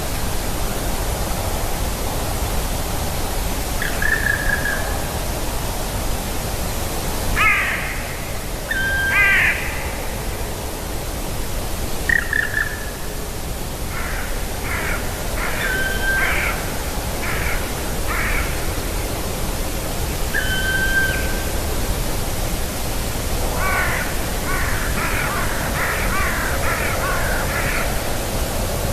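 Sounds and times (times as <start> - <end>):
long level bird calls: 3.8 - 5.2, 7.4 - 10.2, 12.1 - 13.2, 14.0 - 18.6, 20.3 - 21.8, 23.5 - 28.4
crows cawing: 7.4 - 9.7, 13.9 - 16.6, 17.2 - 18.6, 23.5 - 28.0.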